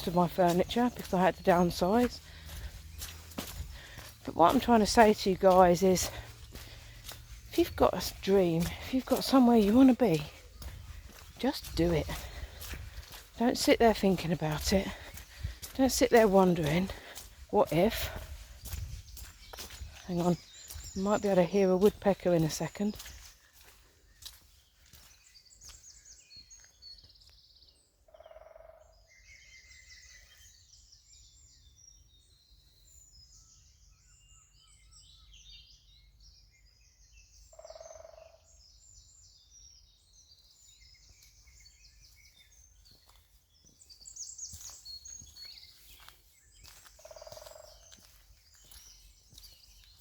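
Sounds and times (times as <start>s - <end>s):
woodland birdsong: 0.0s - 50.0s
woodpecker drumming: 47.0s - 47.8s.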